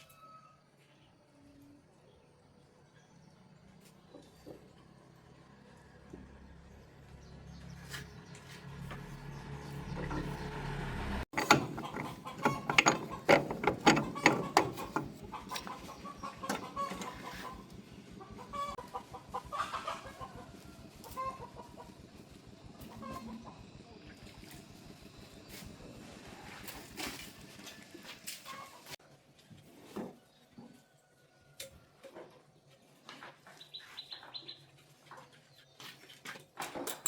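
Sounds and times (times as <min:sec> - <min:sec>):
hand tools clicking on metal: 0:11.3 - 0:17.7
hen clucking: 0:11.3 - 0:22.0.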